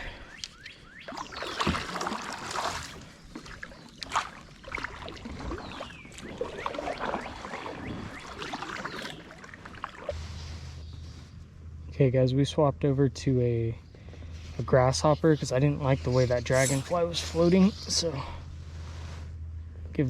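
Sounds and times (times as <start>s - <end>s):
water splashing and dripping: 1.1s - 10.1s.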